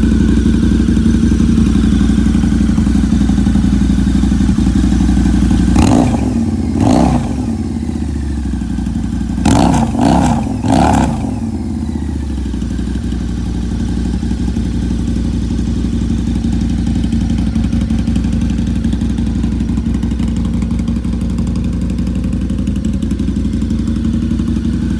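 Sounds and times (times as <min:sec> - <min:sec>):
motorcycle engine blips: 0:00.0 - 0:24.9
motorcycle engine idling: 0:00.0 - 0:24.9.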